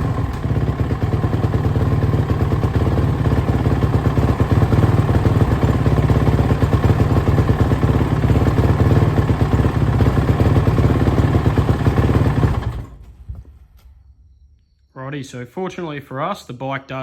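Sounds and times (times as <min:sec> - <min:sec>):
dirt bike engine running erratically: 0:00.0 - 0:13.0.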